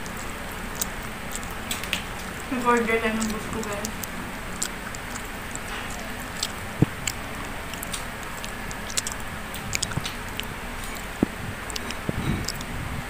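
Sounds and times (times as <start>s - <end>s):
wet smacks and clicks: 0.0s - 12.7s
person chewing: 0.0s - 12.8s.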